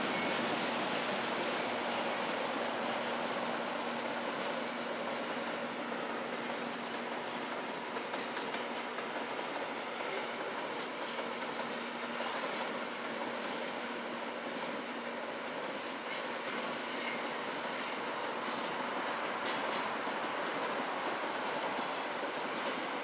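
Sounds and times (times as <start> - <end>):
freight train wagons rumbling: 0.0 - 23.0.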